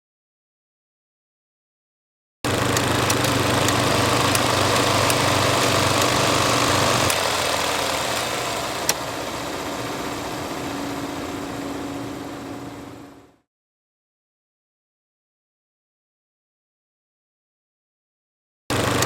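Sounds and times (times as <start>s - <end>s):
film reel whirring: 2.5s - 13.4s, 18.7s - 19.0s
low hum: 2.8s - 13.4s.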